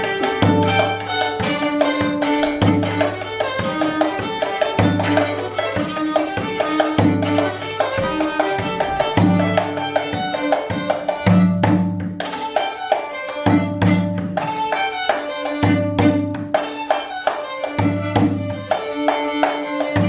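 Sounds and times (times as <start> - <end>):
bowed string line: 0.0 - 20.0
hand drum strokes: 0.0 - 20.0.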